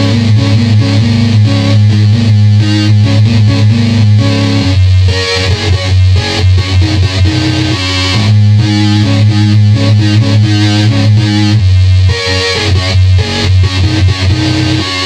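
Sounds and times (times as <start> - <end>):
distorted buzzy keyboard tones: 0.0 - 15.0.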